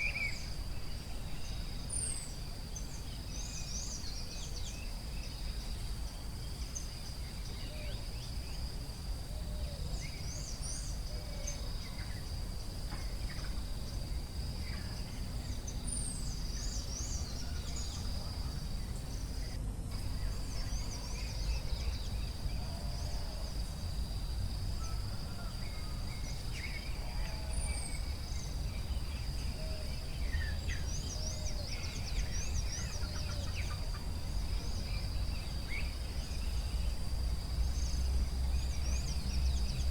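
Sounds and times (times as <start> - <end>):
birds chirping: 0.0 - 39.9
low rounded bird calls: 0.0 - 39.9.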